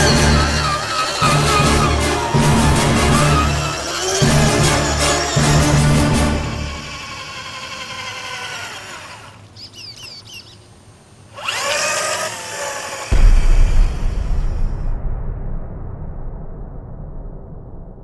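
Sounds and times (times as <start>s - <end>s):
loud low rumble: 0.0s - 6.7s, 13.1s - 18.0s
electric motor whining: 0.0s - 10.6s, 11.3s - 13.6s.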